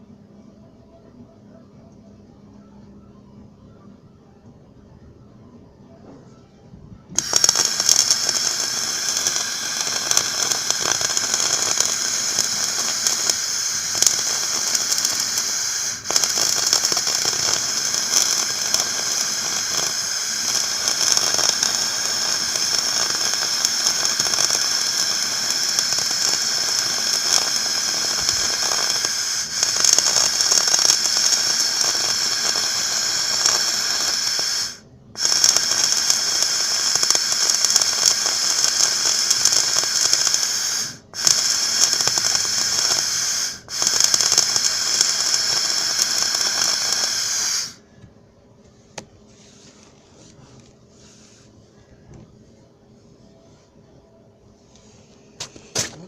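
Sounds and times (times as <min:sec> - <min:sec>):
arc welding sizzle: 0:07.2 - 0:47.8.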